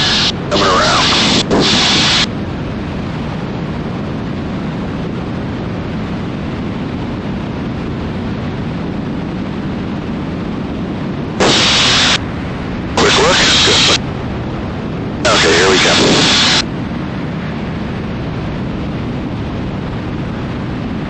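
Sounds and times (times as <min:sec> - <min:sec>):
radio hiss burst: 0:00.0 - 0:02.3, 0:11.4 - 0:12.2, 0:12.9 - 0:14.0, 0:15.2 - 0:16.7
aircraft engines and airflow: 0:00.0 - 0:21.0.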